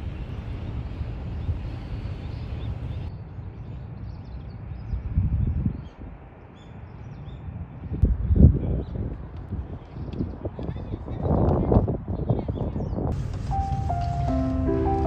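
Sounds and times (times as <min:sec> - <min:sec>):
low rumble: 0:00.0 - 0:03.1, 0:13.2 - 0:15.0
small birds chirping: 0:00.0 - 0:03.1.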